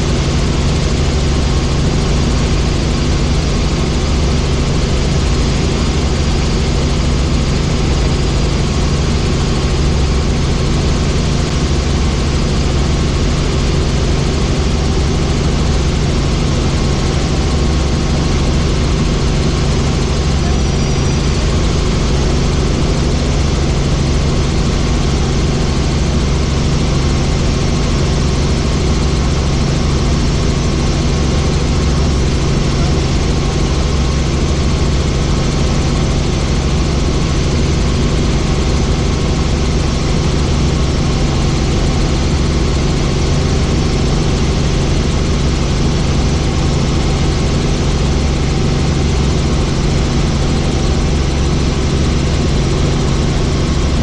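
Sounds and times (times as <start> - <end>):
helicopter engine and rotor drone: 0.0 - 54.0
deep hum: 14.5 - 26.4.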